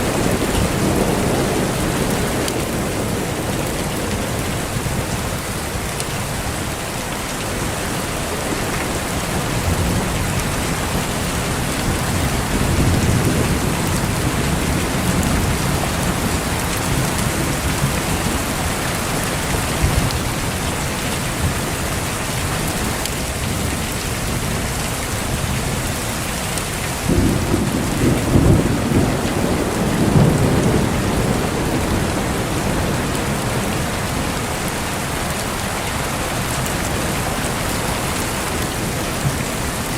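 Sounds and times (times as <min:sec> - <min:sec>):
heavy rain: 0:00.0 - 0:39.9
rolling thunder: 0:09.2 - 0:20.1, 0:27.0 - 0:34.8
loud thunderclap: 0:27.0 - 0:34.0.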